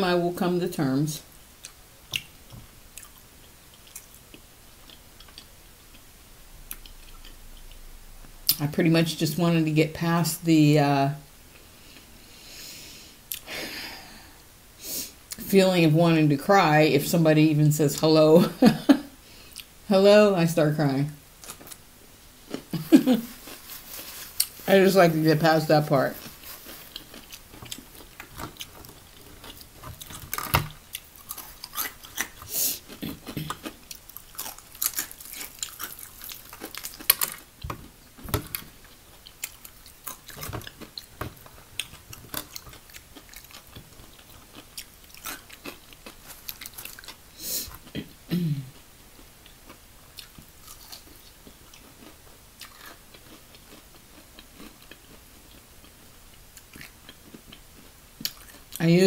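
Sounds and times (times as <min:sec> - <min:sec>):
crunchy chewing: 0:01.6 - 0:06.1, 0:26.1 - 0:48.1, 0:48.8 - 0:58.8.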